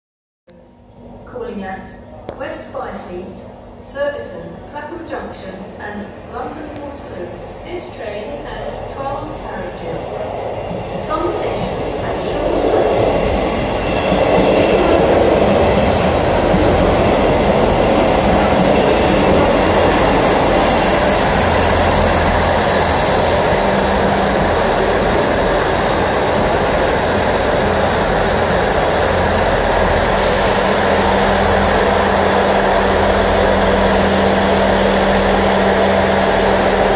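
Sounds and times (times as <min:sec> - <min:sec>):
train rumbling: 0:04.9 - 0:36.9
high-pitched whine: 0:11.9 - 0:36.9.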